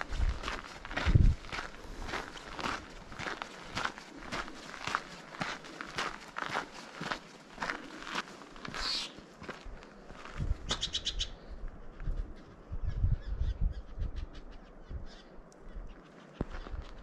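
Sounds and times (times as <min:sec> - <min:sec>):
footsteps on trail: 0:00.0 - 0:10.8, 0:16.4 - 0:17.0
bird harsh call: 0:08.8 - 0:09.2.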